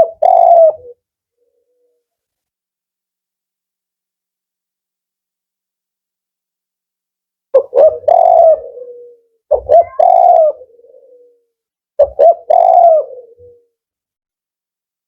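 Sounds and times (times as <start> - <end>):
dove cooing: 0.0 - 2.1, 7.6 - 13.8.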